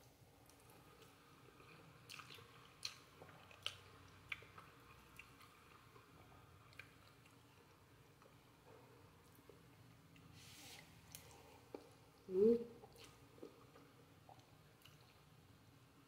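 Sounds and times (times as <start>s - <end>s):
faint chewing of noodles: 0.3s - 16.0s
wet mouth clicks and smacks: 12.8s - 15.2s.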